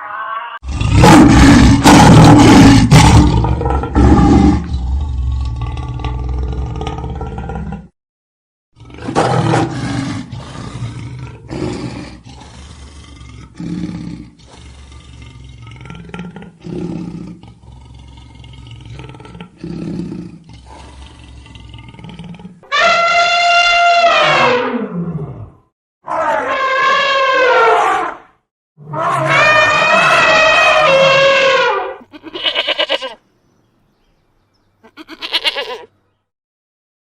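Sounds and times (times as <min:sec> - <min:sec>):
big cat roaring and grunting: 0:00.6 - 0:07.9, 0:08.8 - 0:22.7, 0:23.6 - 0:28.2, 0:28.8 - 0:31.7.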